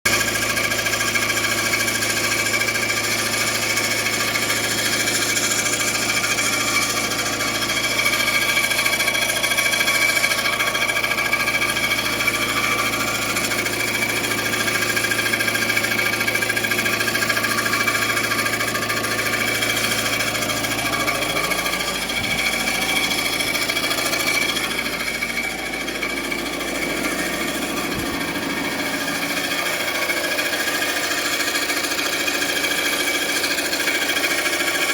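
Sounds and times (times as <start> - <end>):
car engine running: 0.1 - 34.9
rapid mechanical rattle: 0.1 - 34.9
low hum: 20.1 - 29.7.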